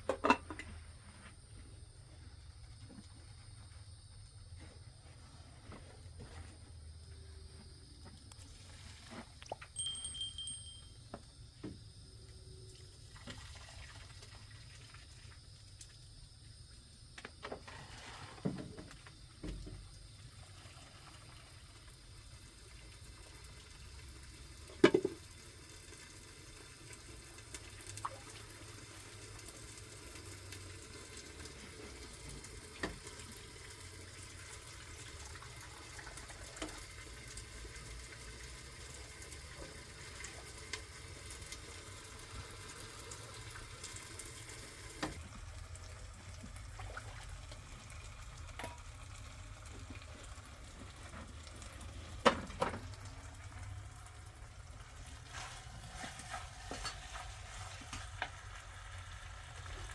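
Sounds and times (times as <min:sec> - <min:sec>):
steady water: 0:12.8 - 0:16.3, 0:25.9 - 0:59.9.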